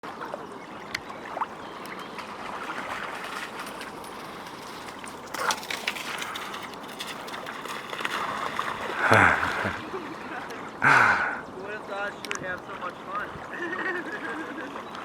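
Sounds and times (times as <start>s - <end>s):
river water lapping: 0.0s - 15.0s
sharp water splashes: 1.2s - 10.5s.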